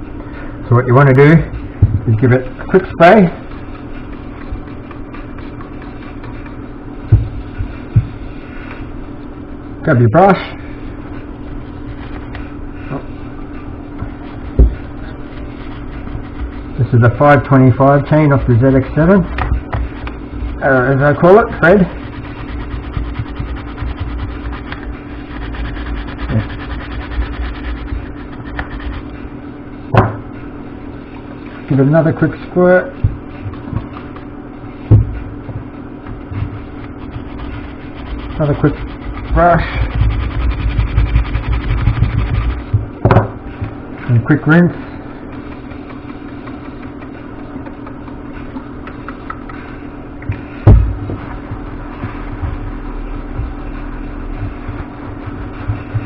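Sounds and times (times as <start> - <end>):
constant low hum: 0.0 - 56.0
brush scrubbing chain: 14.2 - 29.3, 36.6 - 42.8, 44.0 - 48.5.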